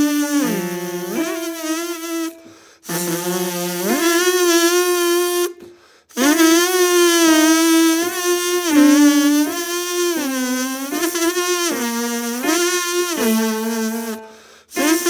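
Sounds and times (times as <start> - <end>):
lip buzzing notes: 0.0 - 15.0
short breaths: 2.4 - 2.9, 5.6 - 6.2, 14.2 - 14.8.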